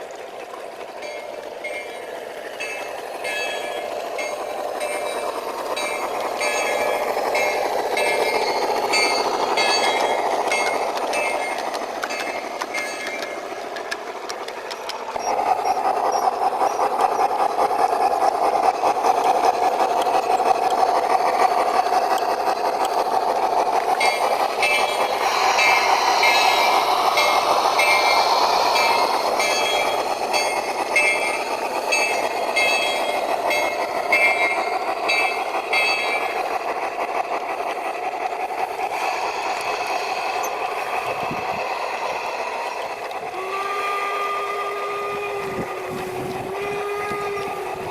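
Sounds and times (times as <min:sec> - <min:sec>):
model locomotive running sound: 0:00.0 - 0:47.9.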